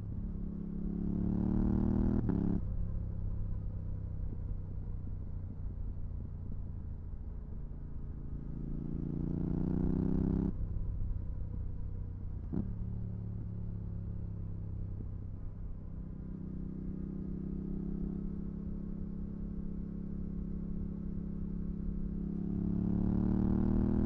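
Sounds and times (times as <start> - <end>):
motorcycle engine revving: 22.4 - 24.0.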